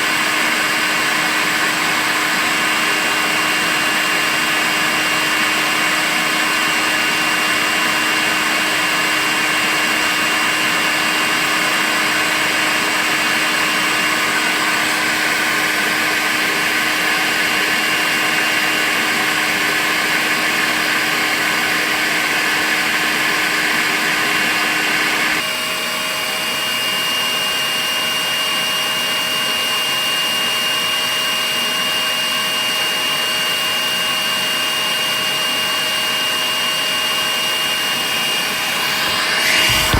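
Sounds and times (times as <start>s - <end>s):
vacuum cleaner motor whine: 0.0s - 39.9s
rushing hiss of air: 38.5s - 39.9s.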